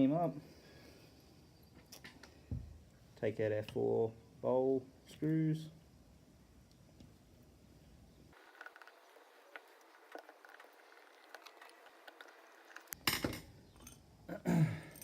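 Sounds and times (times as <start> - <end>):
small metal parts clattering: 12.2 - 14.1, 14.8 - 15.0.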